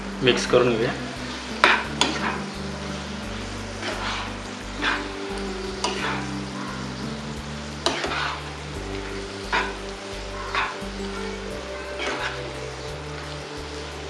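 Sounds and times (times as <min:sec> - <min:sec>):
meat sizzling in a pan: 0:00.0 - 0:14.0
soft background music: 0:00.0 - 0:14.0
spatula scraping a pan: 0:01.2 - 0:05.0, 0:05.8 - 0:06.3, 0:07.8 - 0:08.5, 0:09.4 - 0:10.8.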